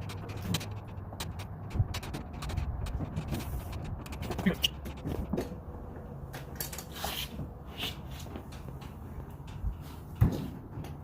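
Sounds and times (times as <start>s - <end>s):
refrigerator scuffing and knocking: 9.8s - 11.0s.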